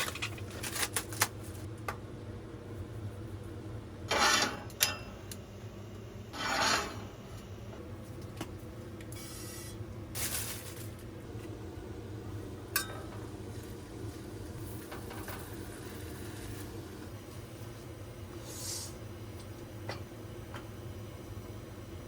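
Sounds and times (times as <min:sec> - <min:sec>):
steady low hum: 0:00.0 - 0:22.0
objects scraping and rubbing: 0:06.3 - 0:07.1.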